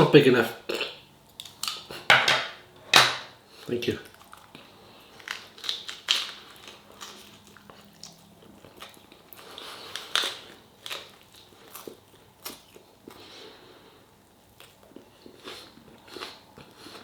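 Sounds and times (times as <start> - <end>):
person chewing meat off ribs: 4.0 - 17.0
wet clicks and crunches: 5.2 - 9.2.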